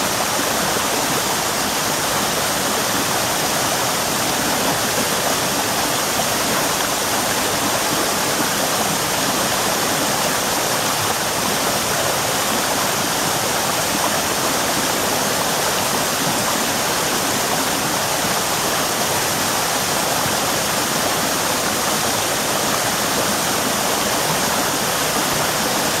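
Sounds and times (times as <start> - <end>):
waterfall roaring over rock: 0.0 - 26.0.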